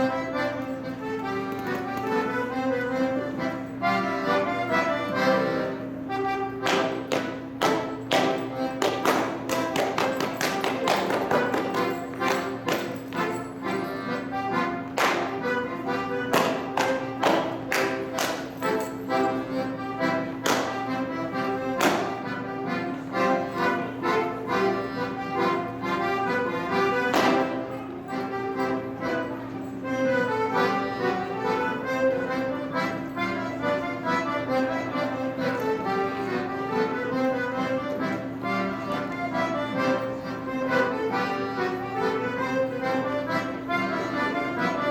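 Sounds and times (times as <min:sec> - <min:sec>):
accordion folk tune: 0:00.0 - 0:44.9
claps and stomps: 0:16.3 - 0:18.5, 0:20.4 - 0:20.8
hand slaps on thighs and shoes: 0:16.3 - 0:18.5, 0:20.4 - 0:20.8, 0:21.8 - 0:22.2.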